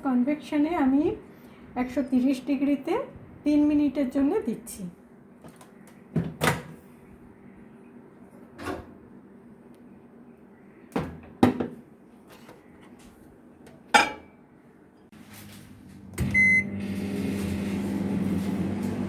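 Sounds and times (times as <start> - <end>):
microwave running hum: 5.1 - 19.0
microwave beep: 16.2 - 17.2.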